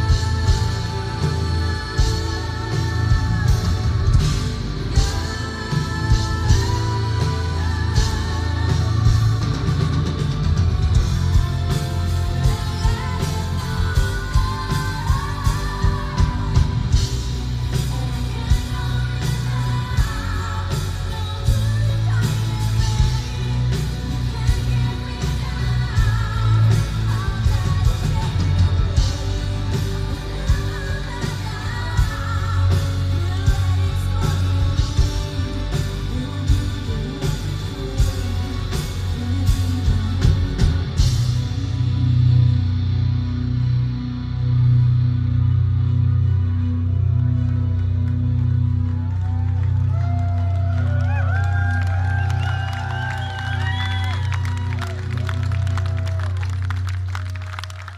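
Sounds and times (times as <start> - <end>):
woman singing lead vocal: 0.0 - 42.8
distorted electric guitars: 0.0 - 57.9
heavy bass: 0.0 - 57.9.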